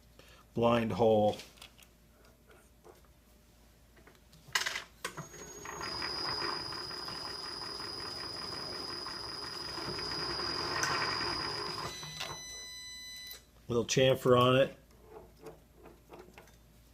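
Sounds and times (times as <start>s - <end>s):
milling machine spindle whining: 5.2s - 12.2s.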